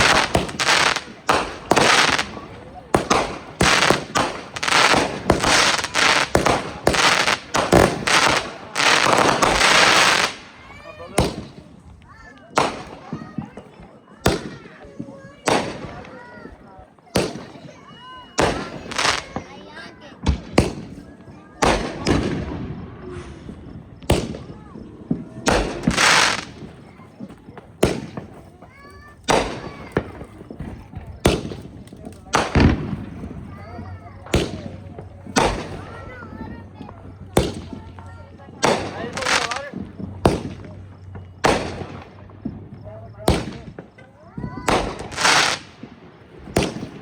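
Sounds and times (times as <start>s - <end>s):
fireworks hissing spray: 0.0s - 11.6s, 18.3s - 19.6s, 23.0s - 43.8s, 44.6s - 47.0s
fireworks bangs: 0.0s - 47.0s.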